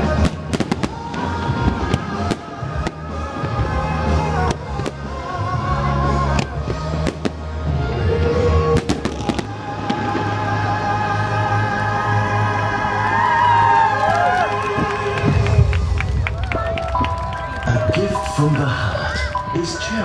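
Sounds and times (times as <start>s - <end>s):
fireworks bangs and cracks: 0.0s - 11.2s, 14.6s - 18.7s
christmas music: 0.0s - 20.0s.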